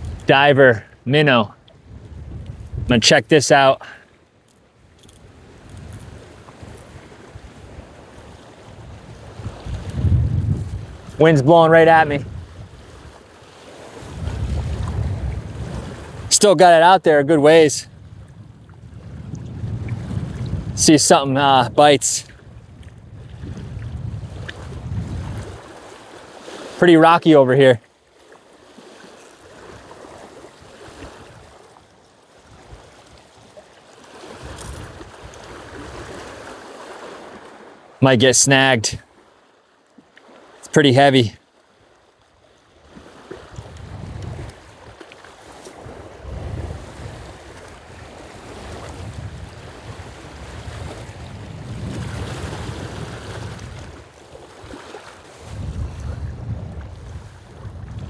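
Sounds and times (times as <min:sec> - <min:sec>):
wind gusting on microphone: 0:00.0 - 0:00.6, 0:01.8 - 0:03.5, 0:05.1 - 0:13.2, 0:13.9 - 0:16.4, 0:17.4 - 0:25.9, 0:29.4 - 0:31.7, 0:34.3 - 0:36.6, 0:42.8 - 0:58.0
waves lapping on rocks: 0:00.0 - 0:17.8, 0:19.0 - 0:58.0.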